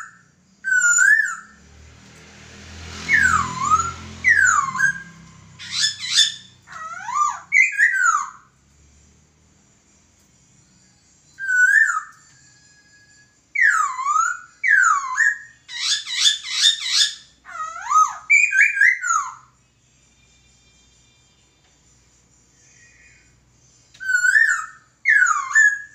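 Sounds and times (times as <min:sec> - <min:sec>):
bird singing whistled phrases: 0:00.0 - 0:01.6, 0:03.0 - 0:08.4, 0:11.3 - 0:19.5, 0:24.0 - 0:25.9.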